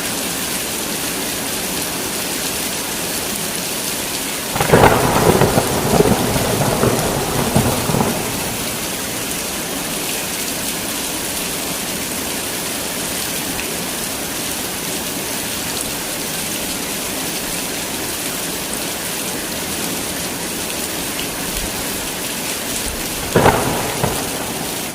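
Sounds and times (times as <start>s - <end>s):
heavy rain hissing: 2.9s - 24.9s
thunder rumbling: 4.6s - 9.8s, 22.8s - 24.9s.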